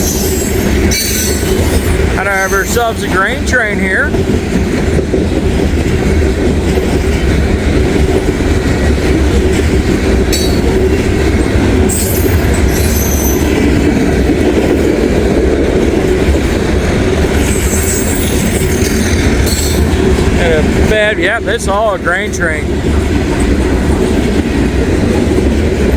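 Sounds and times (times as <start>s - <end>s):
train wheels squealing: 0.0s - 3.0s, 11.9s - 13.6s, 17.4s - 19.9s
train wheels rumbling on rails: 0.0s - 25.9s.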